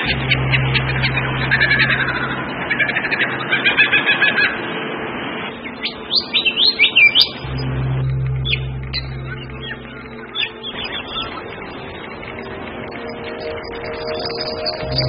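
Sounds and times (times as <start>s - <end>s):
birds chirping and calling: 0.0s - 4.8s, 5.5s - 15.0s
low steady hum: 0.0s - 15.0s
whistled notes: 5.6s - 15.0s.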